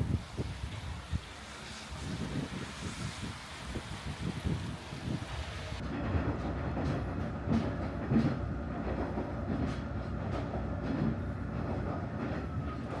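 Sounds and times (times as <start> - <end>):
diesel train running on track: 0.0 - 13.0
wheels knocking over rail joints: 5.8 - 13.0.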